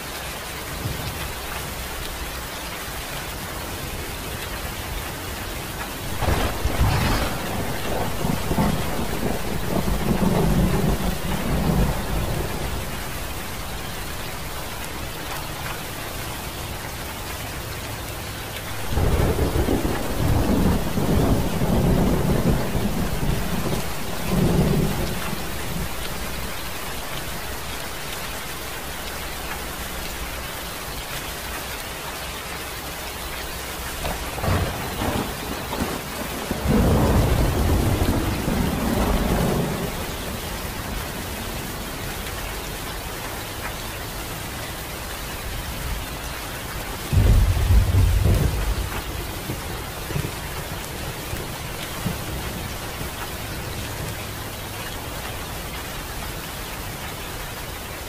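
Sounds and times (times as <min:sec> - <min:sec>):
steady rain falling: 0:00.0 - 0:58.0
thunder rumbling: 0:06.0 - 0:16.0, 0:18.7 - 0:30.0, 0:33.9 - 0:41.9, 0:46.9 - 0:54.1.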